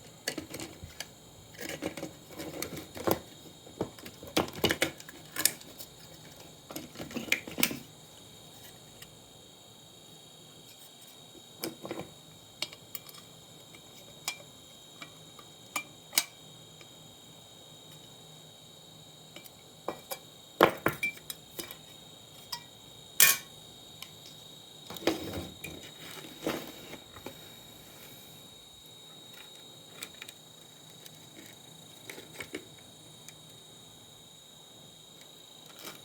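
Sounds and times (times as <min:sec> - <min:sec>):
small tools and parts clinking: 0:11.6 - 0:16.4, 0:19.4 - 0:23.5, 0:35.6 - 0:36.0.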